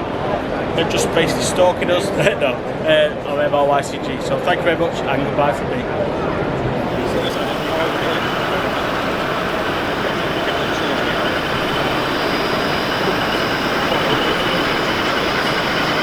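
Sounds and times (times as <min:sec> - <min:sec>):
high-pitched squeal: 0:06.8 - 0:16.0
train rumbling on rails: 0:06.8 - 0:16.0.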